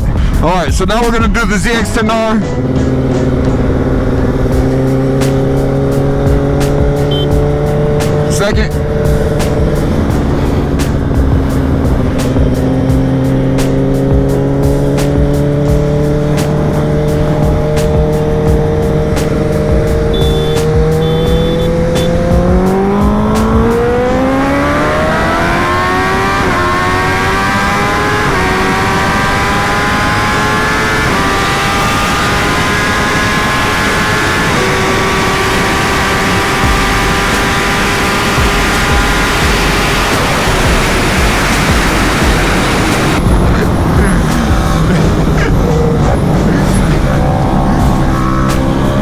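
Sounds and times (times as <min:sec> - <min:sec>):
motorcycle engine revving: 0:01.7 - 0:49.0
wind rush: 0:02.5 - 0:20.1.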